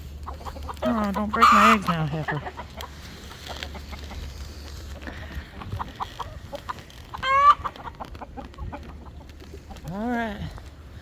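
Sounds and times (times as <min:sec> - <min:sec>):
hens clucking: 0:00.0 - 0:11.0
hen squawking: 0:00.8 - 0:02.8.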